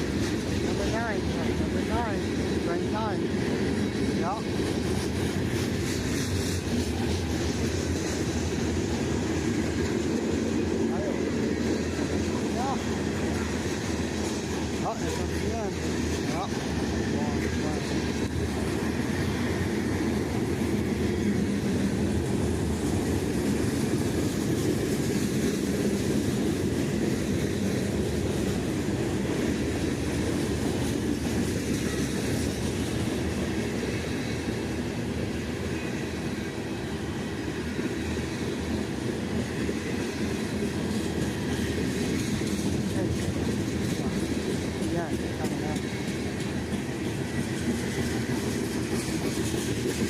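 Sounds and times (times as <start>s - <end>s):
train wheels on rails: 0.0s - 50.0s.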